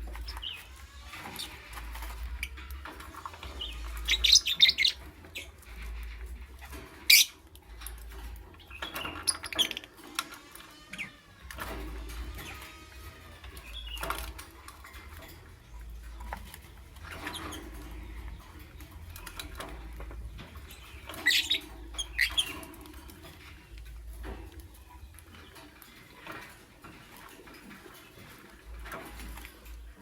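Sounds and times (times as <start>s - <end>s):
bird chirping: 0.0s - 27.0s
scratching and pattering of movement: 0.0s - 30.0s.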